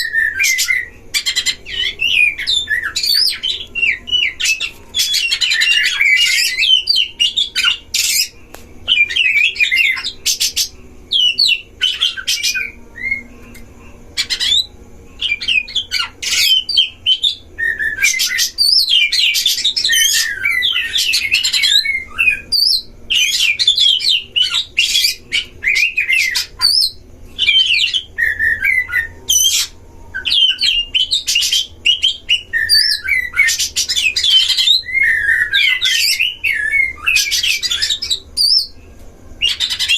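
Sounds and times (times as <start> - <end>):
songbirds whistling: 0.0 - 39.9.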